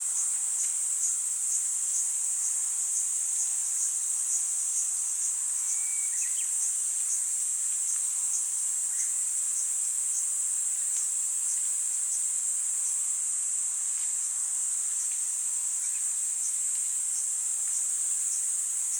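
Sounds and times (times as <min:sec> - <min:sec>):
cicadas buzzing drone: 0:00.0 - 0:18.9.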